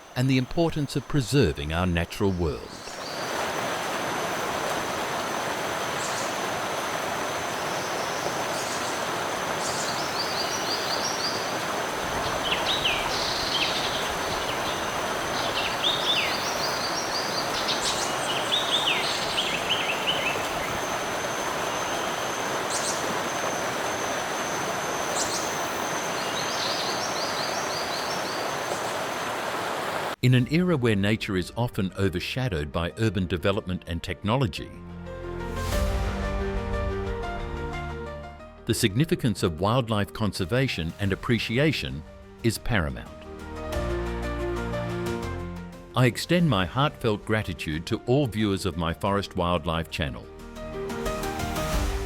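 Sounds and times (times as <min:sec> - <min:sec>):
stream water flowing: 0:00.0 - 0:30.2
high insect drone: 0:02.9 - 0:29.8.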